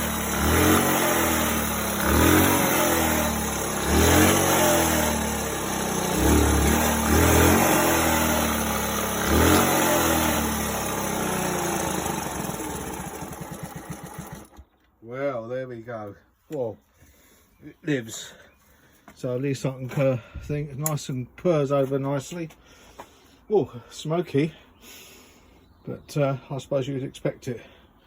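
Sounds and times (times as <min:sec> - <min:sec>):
small motorcycle engine revving: 0:00.0 - 0:14.8.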